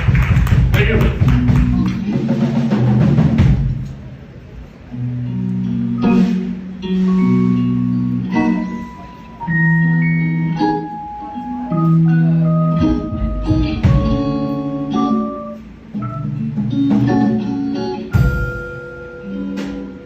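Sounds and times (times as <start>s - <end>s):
drum and cymbal hits: 0.0s - 4.1s, 18.1s - 20.0s
bass: 0.0s - 20.0s
mallet-toned keyboard notes: 7.0s - 20.0s.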